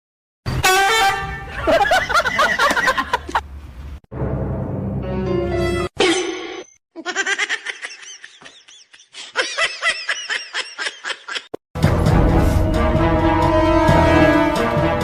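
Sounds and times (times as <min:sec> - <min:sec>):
high-pitched giggling: 0:07.0 - 0:11.5.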